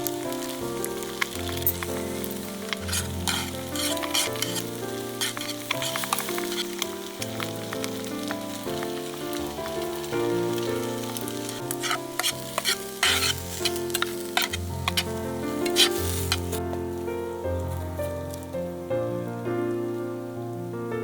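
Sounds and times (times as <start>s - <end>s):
egg sizzling in a pot: 0.0s - 16.7s
background music: 0.0s - 21.0s.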